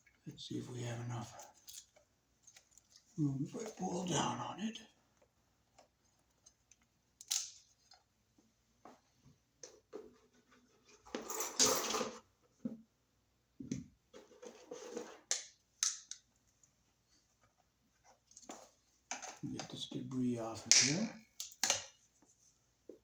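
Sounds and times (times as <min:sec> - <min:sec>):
small clicks of wires: 0:05.2 - 0:08.0.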